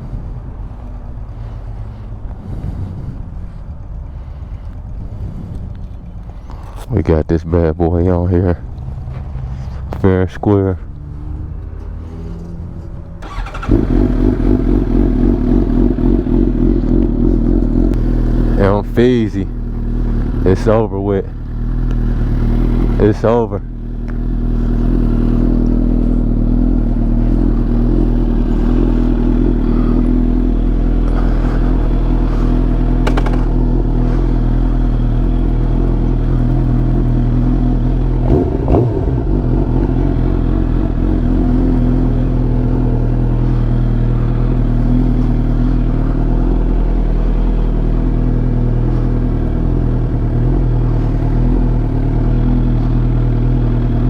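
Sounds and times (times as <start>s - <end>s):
motorcycle engine idling: 12.5s - 54.0s.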